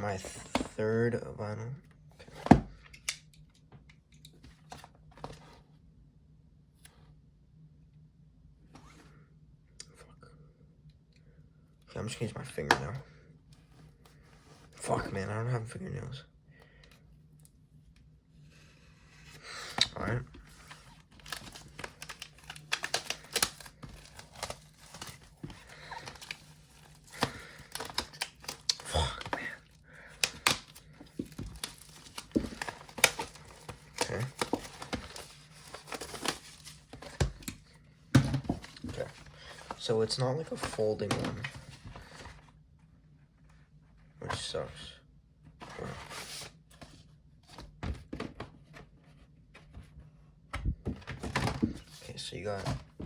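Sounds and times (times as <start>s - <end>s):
cardboard sleeve rustling: 20.0s - 37.7s
plastic shrink wrap crinkling: 21.1s - 29.3s, 30.2s - 37.0s.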